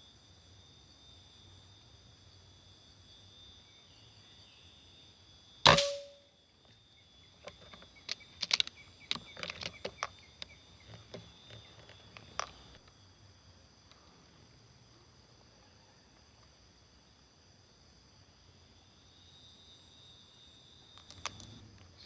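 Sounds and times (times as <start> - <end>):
insects chirring: 0.0 - 22.0
air rifle shot: 5.7 - 6.2.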